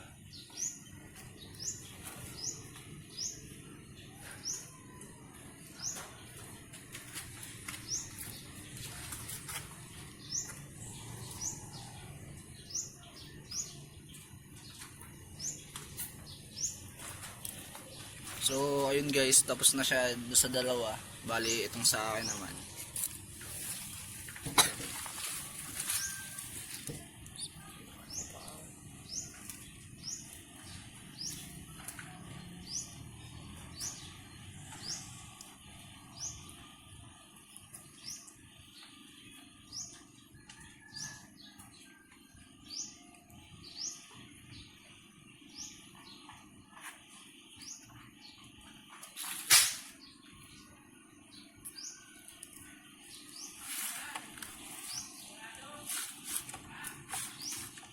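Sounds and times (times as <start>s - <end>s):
small bird chirping: 25.8s - 35.5s.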